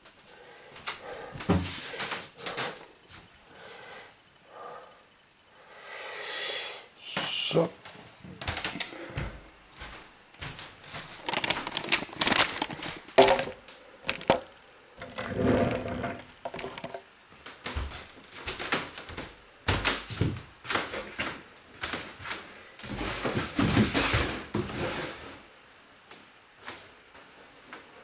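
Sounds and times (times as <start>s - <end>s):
boxes rustling and scraping: 10.8s - 17.0s, 22.8s - 25.4s.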